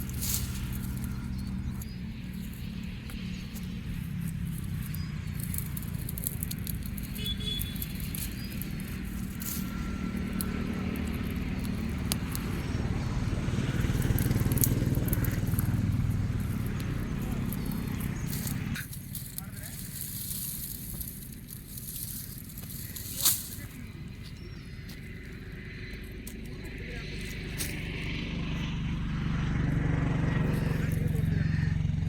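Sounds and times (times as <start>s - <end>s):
vehicle engine humming: 0.0s - 32.0s
sharp crackling clicks: 2.9s - 23.8s.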